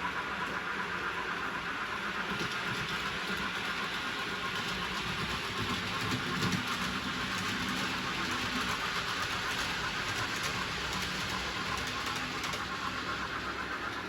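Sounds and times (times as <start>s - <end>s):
model train motor whirr: 0.0s - 14.0s
wheels clicking over rails: 0.0s - 14.0s.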